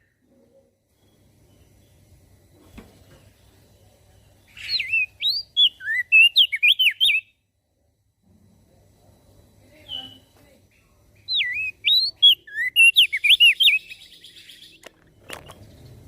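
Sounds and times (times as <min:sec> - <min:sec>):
bird whistled song: 0:04.5 - 0:07.4, 0:09.8 - 0:10.3, 0:11.2 - 0:16.0.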